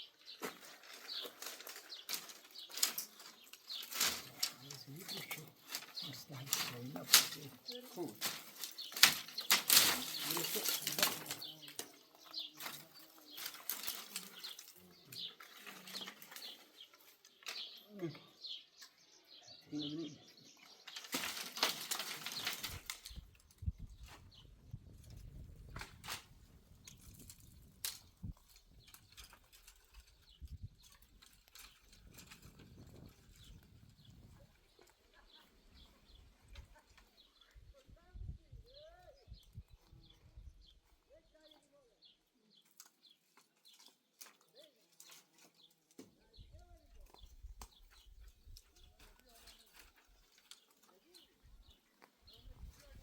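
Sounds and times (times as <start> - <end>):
bird chirps: 0.0 - 21.4.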